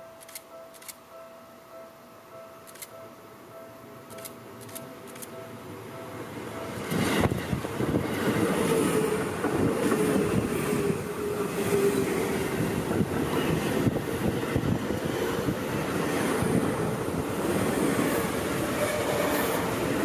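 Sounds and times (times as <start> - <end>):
steel wheels rumbling on rails: 6.7 - 20.0.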